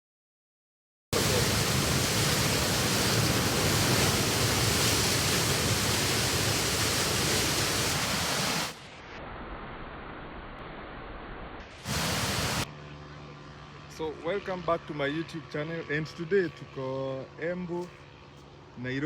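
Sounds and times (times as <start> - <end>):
waterfall rushing: 1.2 - 8.8, 11.8 - 12.6.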